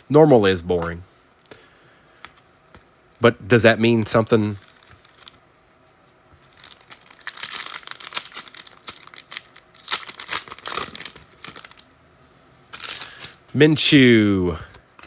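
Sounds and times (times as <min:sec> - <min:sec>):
foil wrapper tearing and crinkling: 0:06.5 - 0:11.9, 0:12.7 - 0:13.4.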